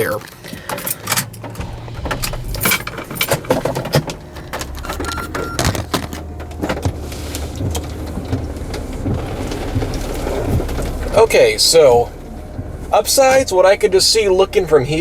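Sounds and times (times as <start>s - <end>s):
car engine running inside cabin: 0.0s - 15.0s
high beeps: 4.4s - 5.9s.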